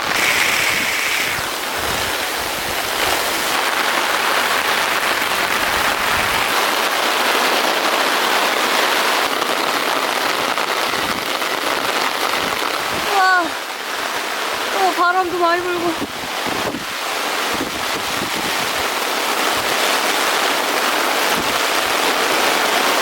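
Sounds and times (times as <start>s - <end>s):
gusty wind rumbles: 0.0s - 7.2s, 9.3s - 19.8s
heavy rain pouring: 0.0s - 23.0s.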